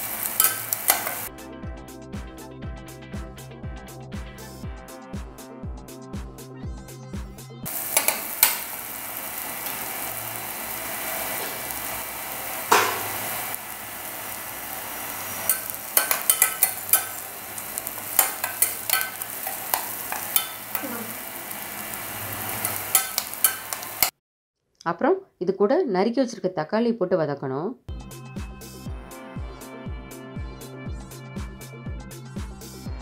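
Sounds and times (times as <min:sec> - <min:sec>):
onions sizzling in oil: 0:00.0 - 0:01.3, 0:07.7 - 0:24.1
ladle scraping and clinking on pot: 0:15.4 - 0:21.4, 0:22.5 - 0:24.1.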